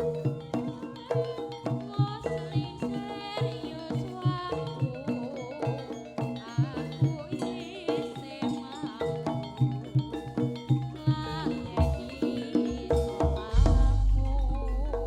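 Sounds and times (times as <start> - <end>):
wavering melodic line: 12.0 - 15.0
low drum strokes: 13.4 - 15.0.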